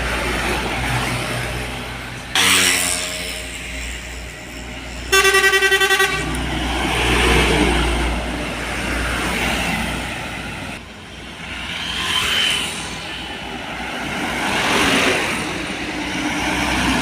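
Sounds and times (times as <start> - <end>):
truck passing by: 0.0 - 17.0
vehicle horn tooting: 5.1 - 6.4.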